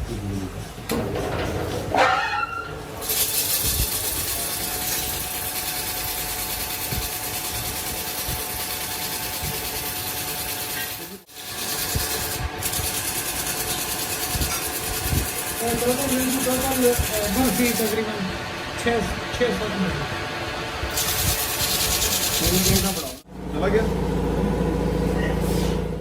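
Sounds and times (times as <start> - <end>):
power tool grinding metal: 3.0 - 18.0, 20.9 - 23.2.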